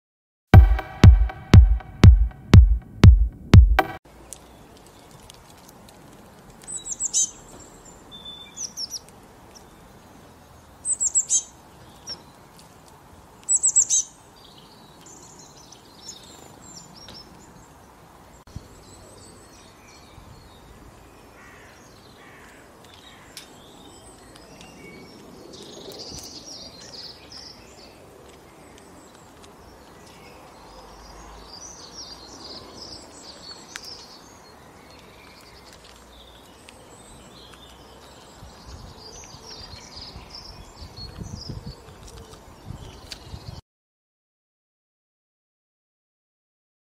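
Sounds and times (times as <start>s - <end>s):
electronic music with kick beat: 0.6s - 4.0s
small birds chirping: 6.2s - 43.6s.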